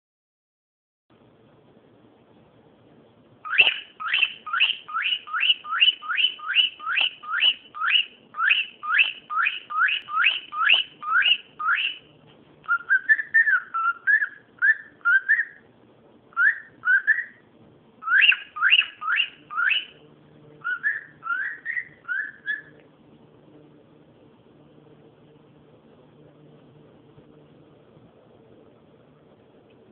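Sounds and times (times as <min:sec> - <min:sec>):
cockatiel whistling: 0:03.4 - 0:12.1, 0:12.7 - 0:15.7, 0:16.3 - 0:20.0, 0:20.6 - 0:22.8
cockatiel warbling notes: 0:20.6 - 0:22.8.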